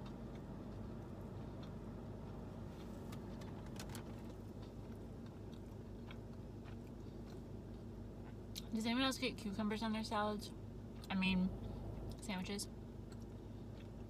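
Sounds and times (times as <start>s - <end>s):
person chewing: 0.0s - 8.7s, 13.0s - 14.0s
low hum: 0.0s - 14.0s.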